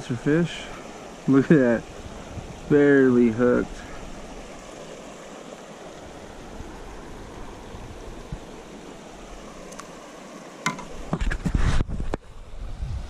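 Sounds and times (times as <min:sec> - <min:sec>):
flowing river water: 0:00.0 - 0:13.0
faint click: 0:09.7 - 0:09.9.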